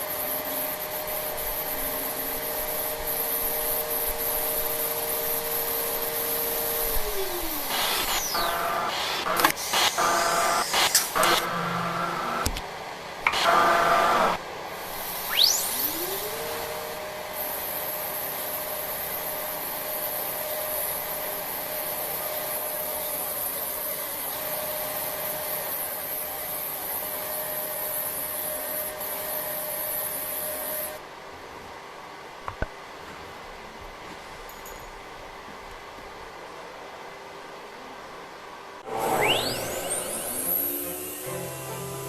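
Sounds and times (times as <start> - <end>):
router spindle whining: 0.1 - 12.6, 13.2 - 14.4, 15.1 - 17.8, 38.8 - 42.0.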